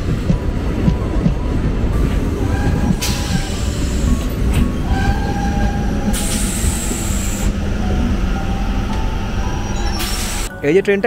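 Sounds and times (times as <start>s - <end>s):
train coaches rumbling: 0.0s - 11.0s
wheels and brakes squealing: 2.5s - 10.5s.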